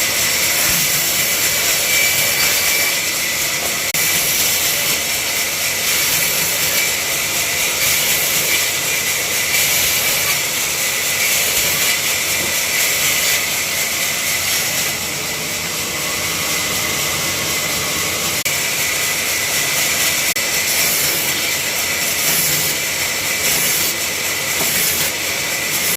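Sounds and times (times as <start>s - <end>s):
woodworking machine hissing: 0.0s - 25.9s.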